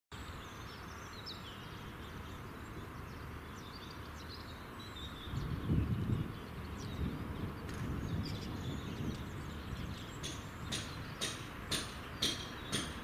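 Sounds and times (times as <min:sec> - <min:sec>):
outdoor background noise: 0:00.1 - 0:13.0
small birds chirping: 0:00.1 - 0:13.0.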